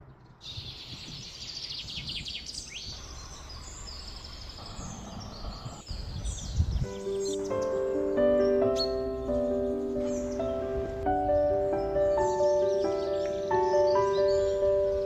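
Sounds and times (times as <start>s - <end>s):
birds chirping and singing: 0.0s - 15.0s
low outdoor rumble: 2.9s - 6.9s.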